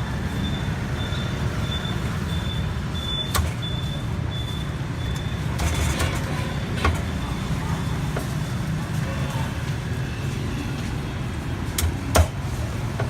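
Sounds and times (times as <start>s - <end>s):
road traffic rumbling: 0.0s - 13.0s
faint high beep: 0.3s - 5.4s.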